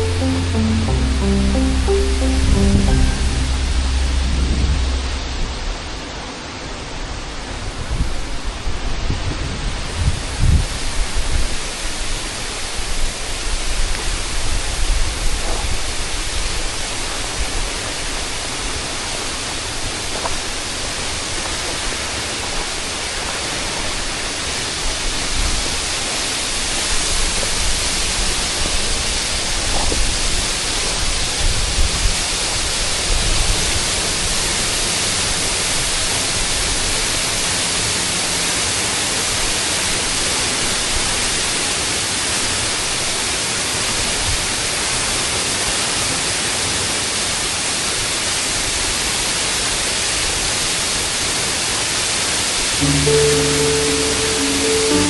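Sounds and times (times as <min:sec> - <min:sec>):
low rumbles: 0:00.0 - 0:06.2.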